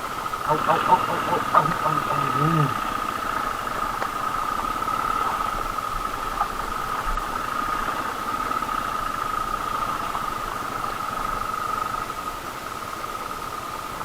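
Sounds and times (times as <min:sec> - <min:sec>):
motorcycle engine pulsing: 0:00.0 - 0:11.2.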